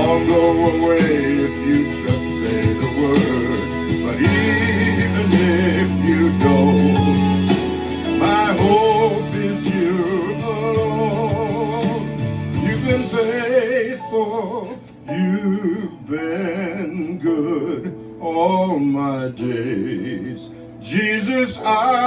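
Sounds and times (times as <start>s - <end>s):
instrumental accompaniment: 0.0s - 15.8s
person singing with vibrato: 0.0s - 22.0s.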